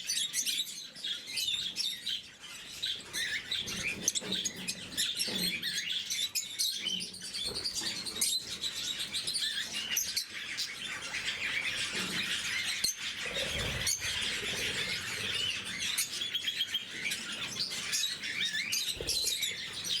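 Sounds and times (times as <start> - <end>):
lovebirds chirping and chattering: 0.0 - 20.0.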